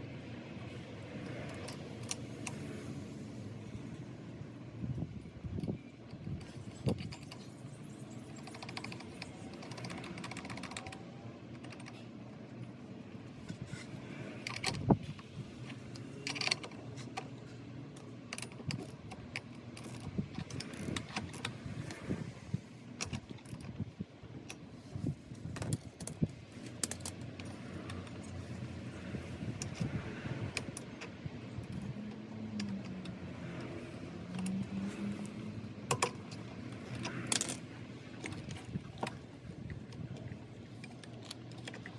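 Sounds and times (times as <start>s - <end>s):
metal parts clicking and clinking: 5.2s - 12.7s, 13.4s - 17.4s, 18.0s - 22.1s, 23.0s - 23.8s, 25.4s - 28.9s, 32.6s - 39.2s.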